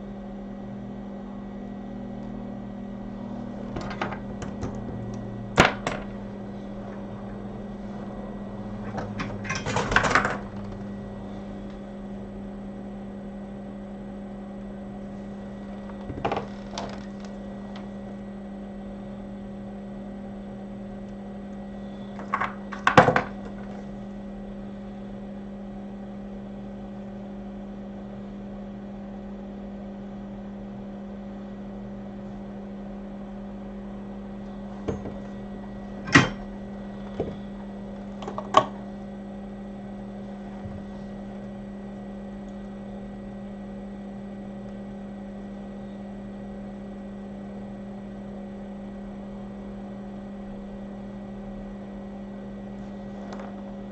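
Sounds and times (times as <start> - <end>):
electrical equipment hum: 0.0 - 53.9.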